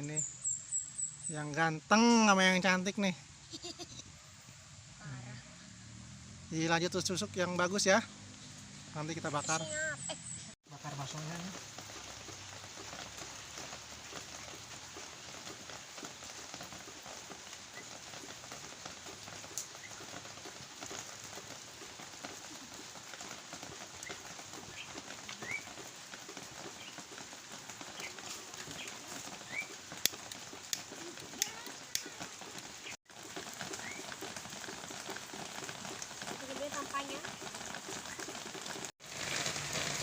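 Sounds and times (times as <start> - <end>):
steady rain falling: 10.6 - 40.0.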